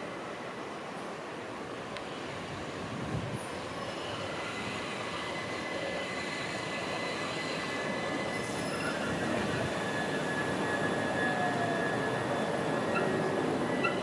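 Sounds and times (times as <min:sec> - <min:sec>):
train wheel and track noise: 0:00.0 - 0:14.0
high steady squeal: 0:03.4 - 0:14.0.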